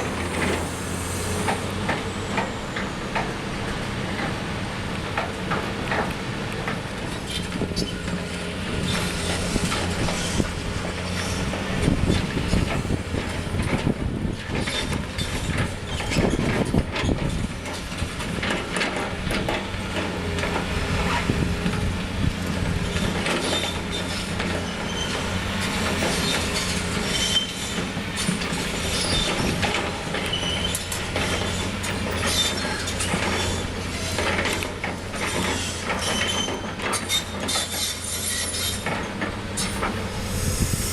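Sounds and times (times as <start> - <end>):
excavator diesel engine running: 0.0 - 40.9
high metal squeaks: 26.1 - 29.4, 35.3 - 40.9.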